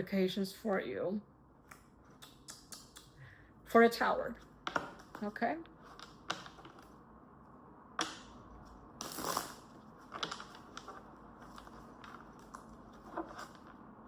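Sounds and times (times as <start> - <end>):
cards rustling: 9.1 - 13.8.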